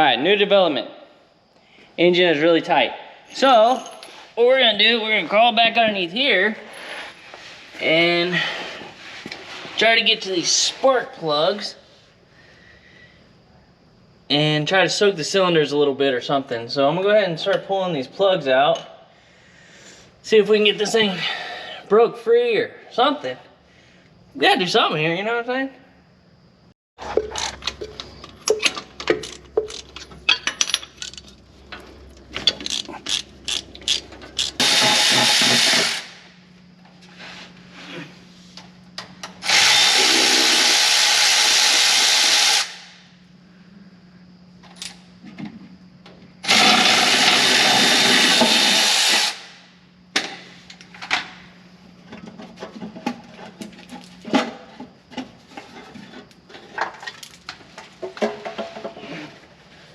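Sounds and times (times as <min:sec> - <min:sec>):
hand tools clicking and knocking: 0:27.0 - 0:35.9
power tool running: 0:33.5 - 0:36.2, 0:39.4 - 0:42.9, 0:46.4 - 0:49.5.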